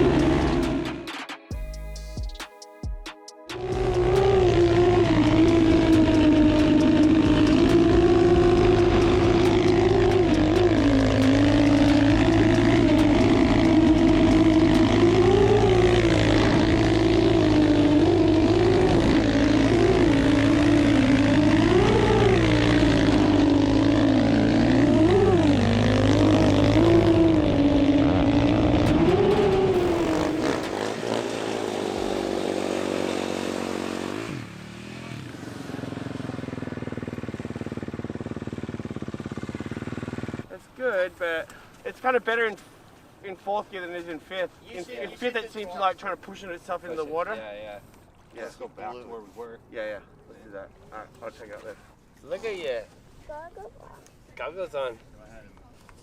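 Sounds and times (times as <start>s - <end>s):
dirt bike engine revving: 0.0s - 2.2s, 3.5s - 40.5s.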